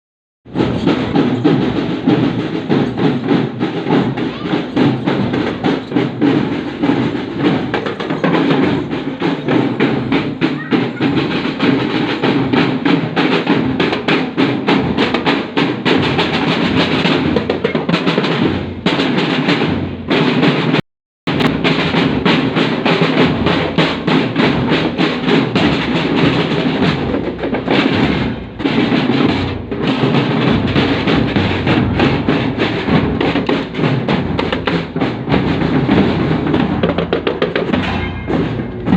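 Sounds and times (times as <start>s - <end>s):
snare and bass drums playing: 0.5s - 38.9s.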